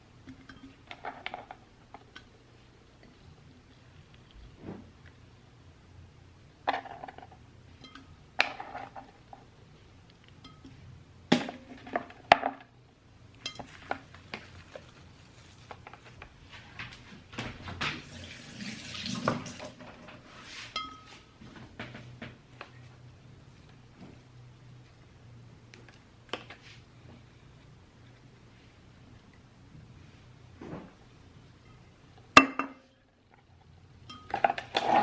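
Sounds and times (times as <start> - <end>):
dishes and utensils clinking: 13.4 - 14.9, 19.6 - 22.0, 34.1 - 35.0
water running from tap: 18.0 - 19.9.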